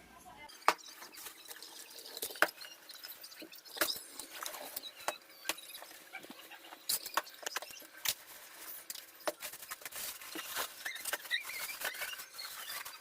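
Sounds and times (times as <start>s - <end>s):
packaging crinkling and rustling: 5.8s - 13.0s.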